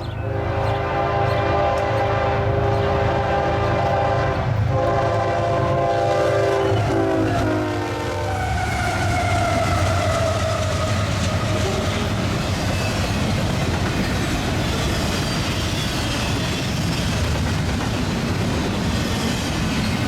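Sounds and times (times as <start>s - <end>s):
train horn: 0.0s - 12.4s
diesel locomotive engines rumbling: 0.0s - 20.0s
wheels clacking on rails: 0.0s - 20.0s.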